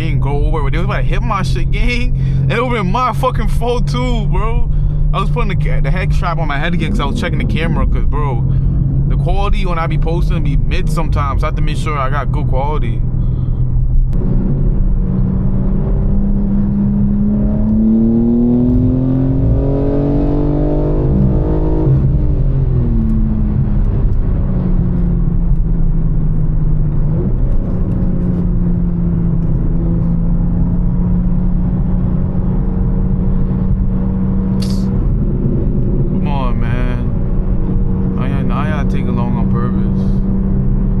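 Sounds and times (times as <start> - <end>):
car engine revving: 0.0 - 41.0
road and tyre noise: 0.0 - 41.0.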